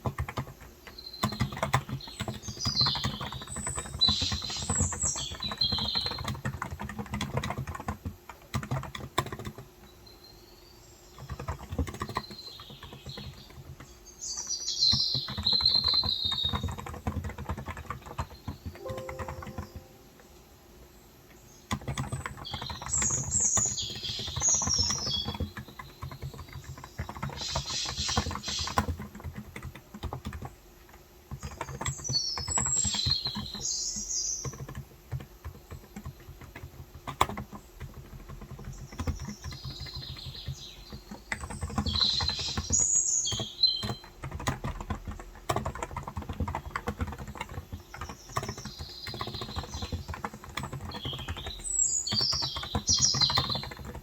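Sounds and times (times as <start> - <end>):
fast typing on a keyboard: 0.0 - 20.3, 21.3 - 54.0
birds chirping: 18.1 - 20.4, 46.5 - 54.0.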